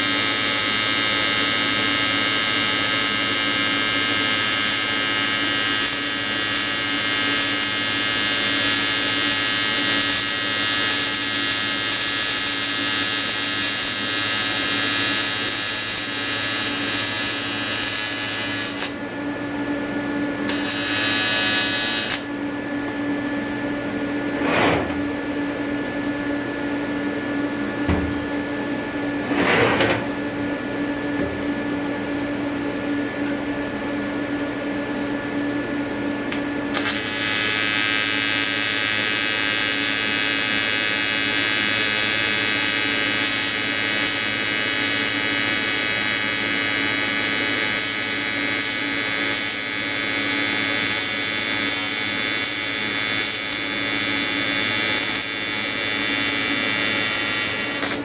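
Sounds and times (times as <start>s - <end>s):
welding arc buzzing: 0.0s - 19.0s, 20.4s - 22.4s, 36.3s - 58.0s.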